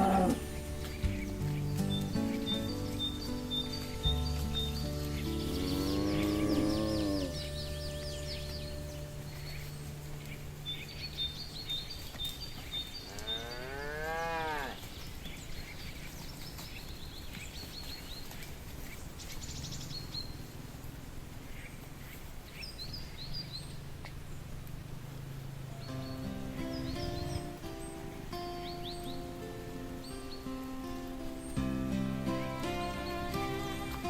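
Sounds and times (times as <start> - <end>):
cow mooing: 0.0 - 0.6, 5.2 - 7.7, 13.1 - 14.8.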